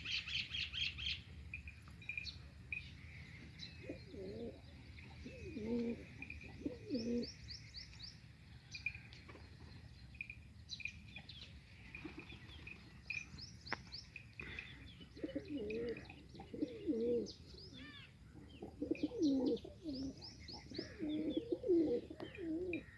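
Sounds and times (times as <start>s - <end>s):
small birds chirping: 0.0s - 22.9s
pigeons cooing: 3.7s - 7.4s, 14.4s - 22.9s.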